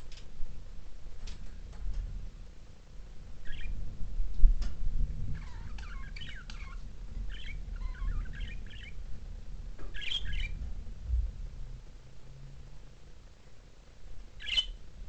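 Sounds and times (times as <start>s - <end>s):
low rumble: 0.0s - 15.0s
budgerigars chirping and chattering: 3.4s - 3.8s, 5.3s - 9.0s, 9.9s - 10.6s, 14.4s - 14.8s.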